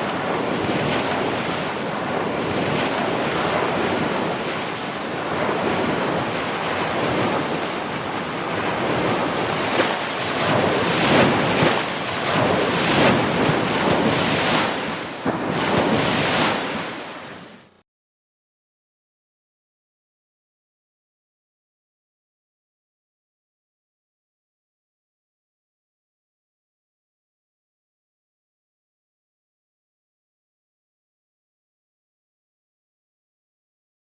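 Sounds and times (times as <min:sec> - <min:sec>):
ocean surf breaking: 0:00.0 - 0:17.8.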